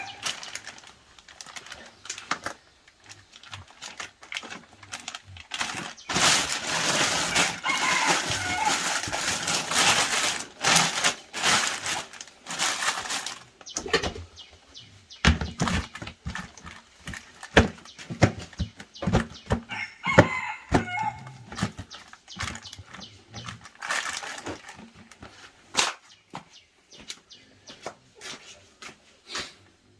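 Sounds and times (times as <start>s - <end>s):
chickens squawking: 0.0s - 0.7s, 5.5s - 11.0s
dense rustling: 3.0s - 13.6s.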